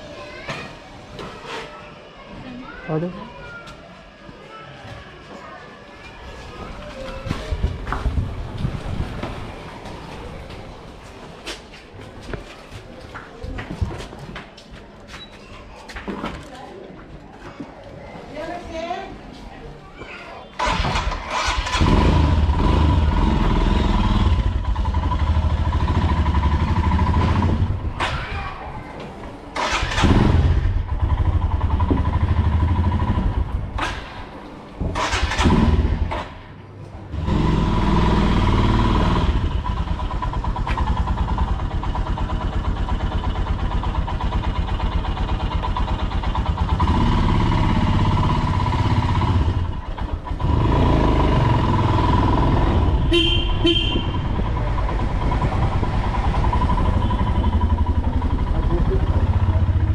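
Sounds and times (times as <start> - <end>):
motorcycle engine revving: 20.6 - 28.0, 29.6 - 34.1, 34.9 - 36.4, 37.1 - 59.9.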